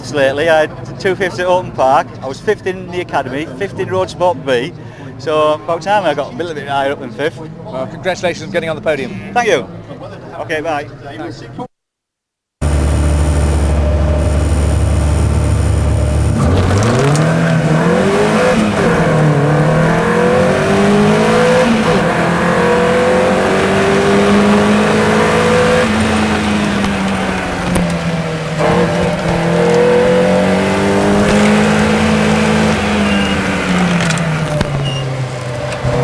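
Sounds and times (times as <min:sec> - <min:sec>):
racing car engine accelerating: 0:12.6 - 0:36.0.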